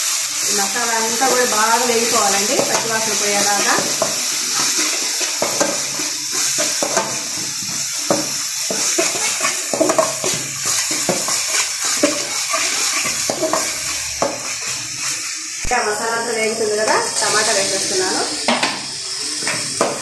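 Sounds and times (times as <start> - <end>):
paste sizzling in oil: 0.0 - 20.0
spatula scraping metal pan: 2.2 - 15.2.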